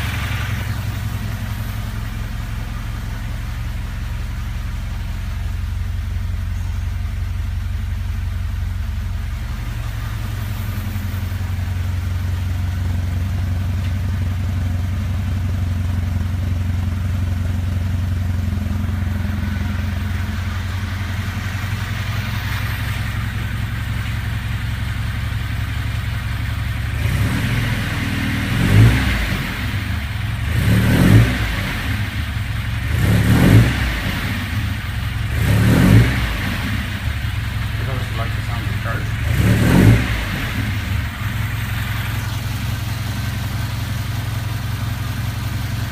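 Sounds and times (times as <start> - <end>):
car engine idling: 0.0 - 45.9
engine revving: 17.8 - 45.9.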